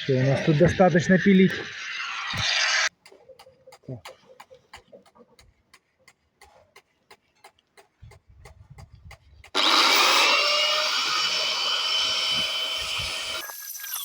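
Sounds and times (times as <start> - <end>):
angle grinder whining: 9.5 - 14.0.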